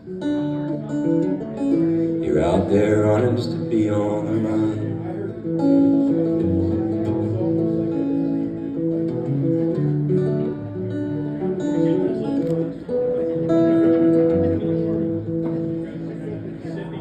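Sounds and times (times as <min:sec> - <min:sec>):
acoustic guitar picking: 0:00.0 - 0:17.0
person singing folk song: 0:00.2 - 0:11.8.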